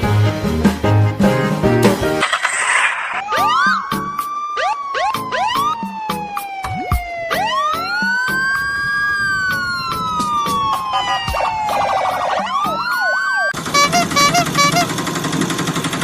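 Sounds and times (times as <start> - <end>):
electronic sliding tones: 2.2 - 5.7
rhythmic electronic beeping: 3.2 - 8.3, 10.9 - 14.8.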